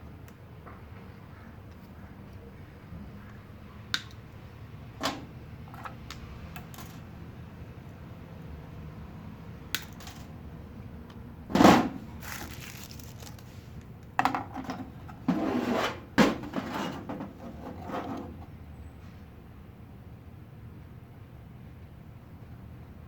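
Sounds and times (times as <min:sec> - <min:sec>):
rustling and scraping: 0:11.5 - 0:18.5.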